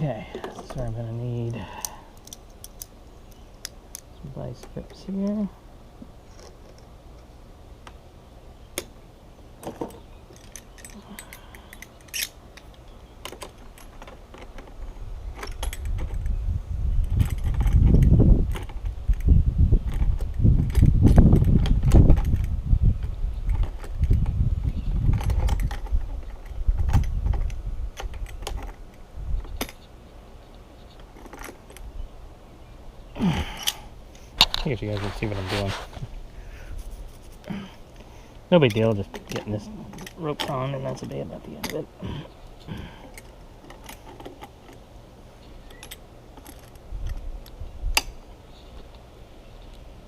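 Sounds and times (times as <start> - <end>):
hand tools clicking on metal: 10.3 - 14.6
clicks and clatter of metal and plastic: 25.0 - 28.8, 31.0 - 31.8, 38.6 - 41.8, 42.7 - 44.8.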